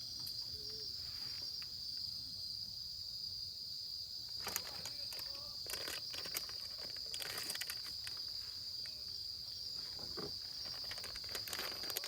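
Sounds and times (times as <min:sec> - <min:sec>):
insects chirring: 0:00.0 - 0:12.0
faint clicks and rustles: 0:04.3 - 0:12.0.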